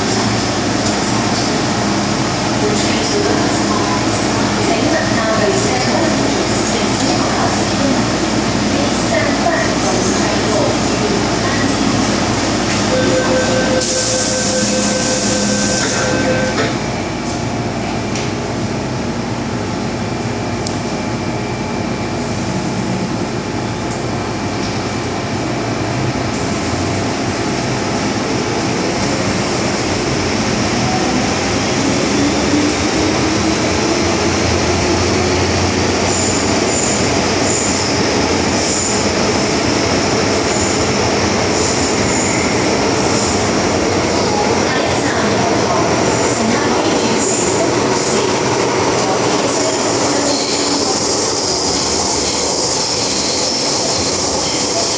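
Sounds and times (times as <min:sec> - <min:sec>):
train motor whine: 0:12.9 - 0:16.8.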